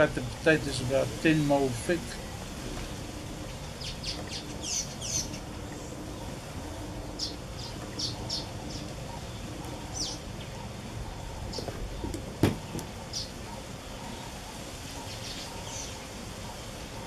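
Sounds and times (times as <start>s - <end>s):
bird chirping: 0.0s - 16.8s
low background noise: 0.0s - 17.0s.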